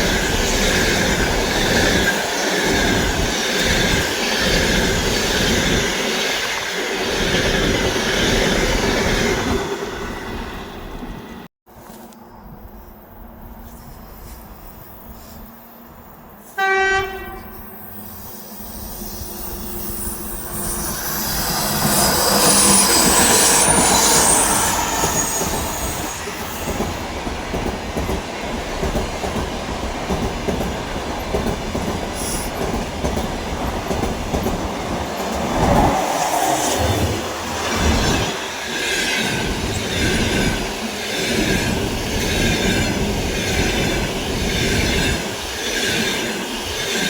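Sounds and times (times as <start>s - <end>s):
train wheels on rails: 0.0s - 16.6s, 17.2s - 47.0s
train horn blast: 16.4s - 17.8s.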